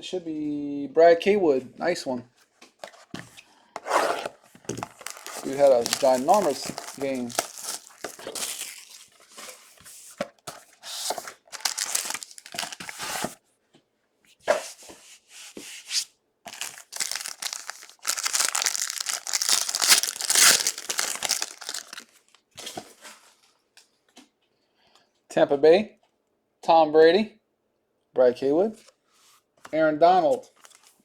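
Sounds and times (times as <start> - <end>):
card packaging tearing and crinkling: 3.8 - 9.7, 10.5 - 13.4, 16.5 - 22.4.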